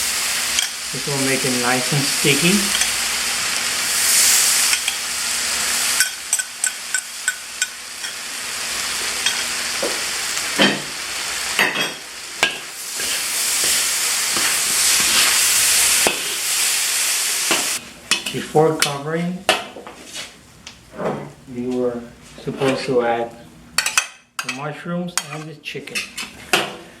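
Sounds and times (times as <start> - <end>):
food sizzling in a pan: 0.0 - 18.2.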